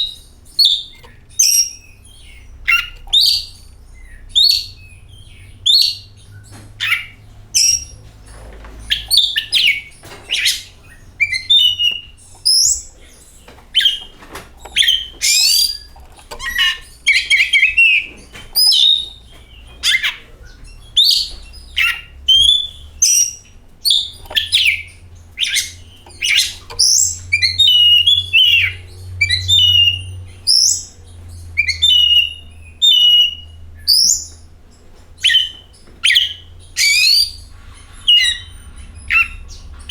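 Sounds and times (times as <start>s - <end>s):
magpie-robin singing: 0.0s - 39.9s
steady low hum: 0.0s - 39.9s.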